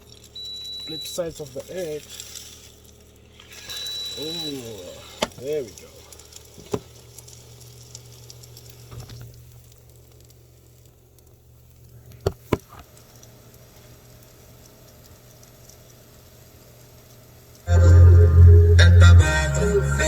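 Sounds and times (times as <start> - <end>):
egg sizzling in hot oil: 0.0 - 18.1
steady low hum: 17.6 - 20.0.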